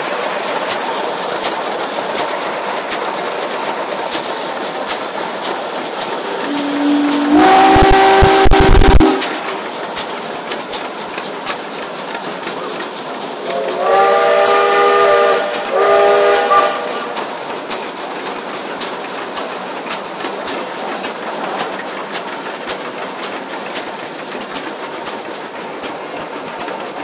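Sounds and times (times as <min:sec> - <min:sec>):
steam engine clicking beat: 0:00.0 - 0:27.0
steam whistle blasts: 0:06.2 - 0:09.8, 0:13.4 - 0:17.3.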